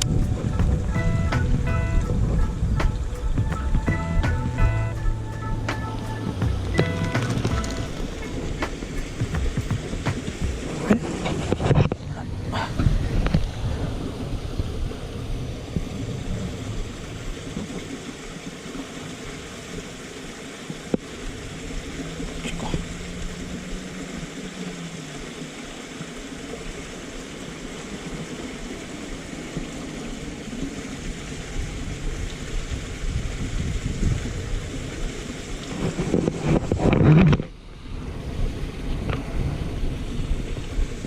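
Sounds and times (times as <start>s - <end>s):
wind on microphone: 0.0s - 18.2s, 29.6s - 41.0s
water rushing: 0.0s - 41.0s.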